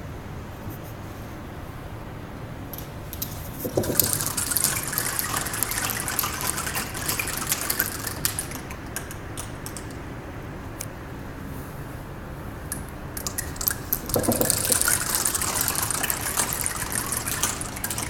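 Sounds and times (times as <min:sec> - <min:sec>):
small iron balls pattering down: 0:02.8 - 0:10.0, 0:12.7 - 0:18.0.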